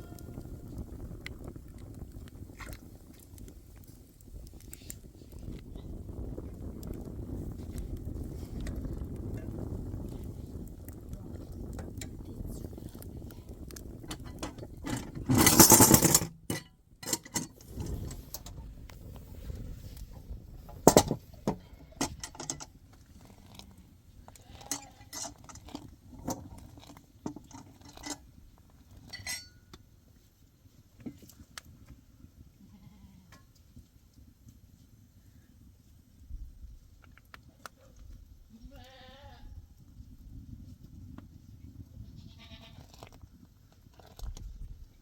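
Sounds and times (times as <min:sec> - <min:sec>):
low steady rumble: 0:03.8 - 0:26.7
objects clinking and knocking: 0:14.1 - 0:18.6, 0:20.7 - 0:22.7.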